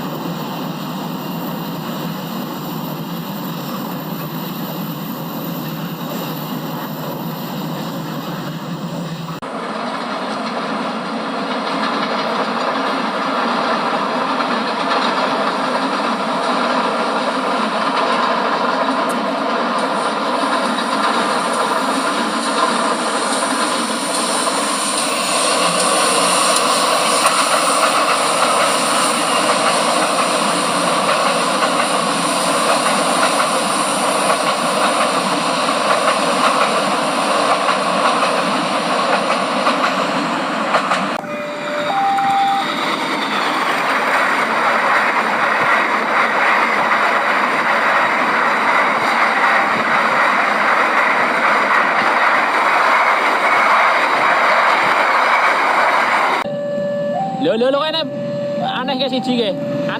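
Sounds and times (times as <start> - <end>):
train running on track: 0.0 - 59.9
short tones: 41.2 - 43.3, 56.5 - 59.9.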